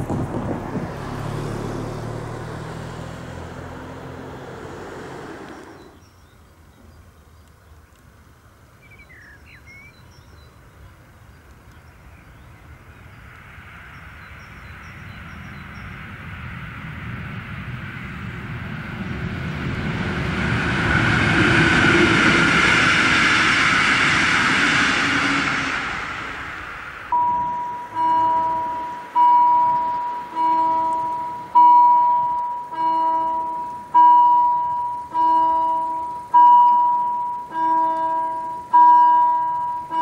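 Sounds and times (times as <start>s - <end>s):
train passing rumble: 0.0s - 9.2s, 10.2s - 40.0s
level-crossing bell ringing: 27.1s - 40.0s.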